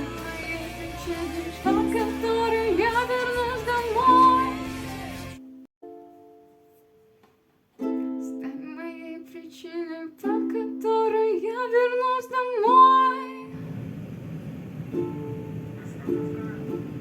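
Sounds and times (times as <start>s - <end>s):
ukulele chords: 0.0s - 4.7s, 5.4s - 13.7s, 14.8s - 17.0s
person singing: 0.0s - 5.4s, 8.0s - 13.5s.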